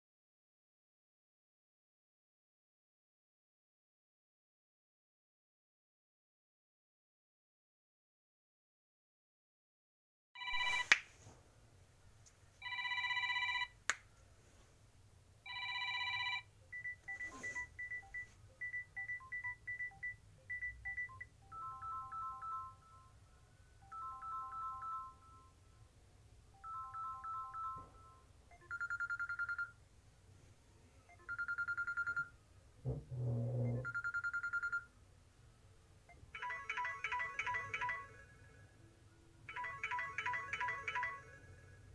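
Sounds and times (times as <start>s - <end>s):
phone ringtone beeps: 10.4s - 10.9s, 12.6s - 13.8s, 15.5s - 23.2s, 23.8s - 25.6s, 26.5s - 29.8s, 31.1s - 32.4s, 33.6s - 34.9s, 36.1s - 38.6s, 39.5s - 41.8s.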